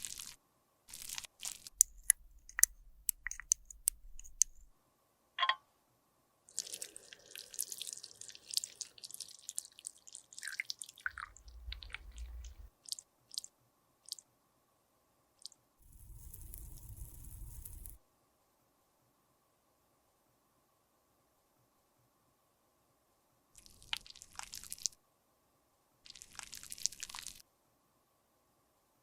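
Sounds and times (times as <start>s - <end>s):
makeup crunching and crackling: 0.9s - 4.7s
sharp clicks: 1.8s - 4.7s.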